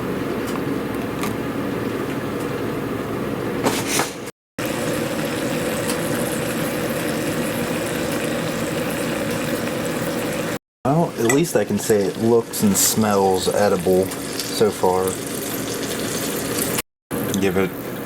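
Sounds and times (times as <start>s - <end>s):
meat sizzling in a skillet: 4.6s - 10.6s, 13.8s - 16.8s.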